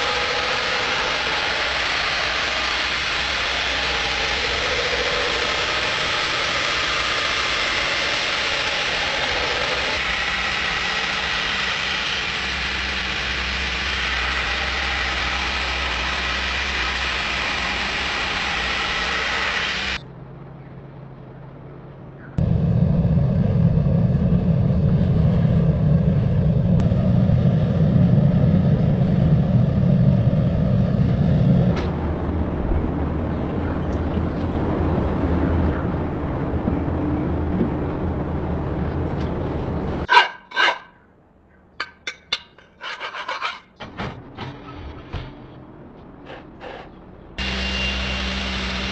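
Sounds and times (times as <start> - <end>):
workshop machine hiss: 0.0 - 20.0, 47.4 - 48.9
heavy low machine hum: 0.0 - 40.1, 43.8 - 48.9.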